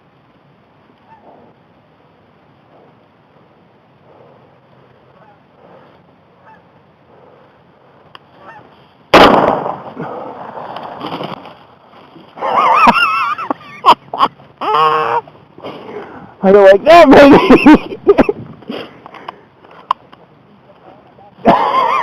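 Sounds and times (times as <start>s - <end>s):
geese honking: 5.1s - 5.8s, 6.4s - 6.8s, 8.3s - 8.7s, 14.6s - 15.3s
shotgun blast: 9.1s - 10.0s.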